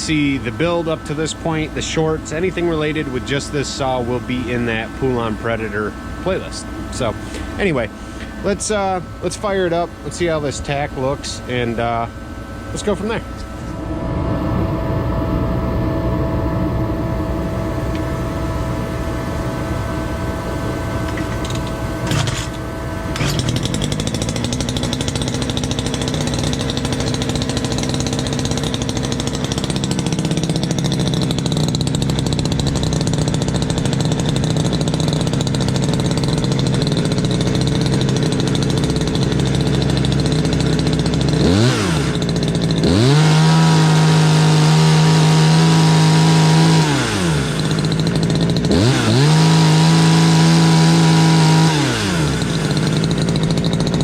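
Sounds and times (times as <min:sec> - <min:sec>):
chainsaw running and revving: 0:19.9 - 0:54.0.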